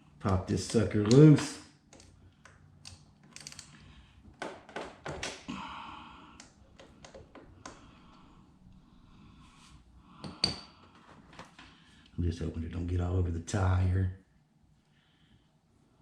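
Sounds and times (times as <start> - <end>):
hand tools clicking on metal: 0.2 - 3.8.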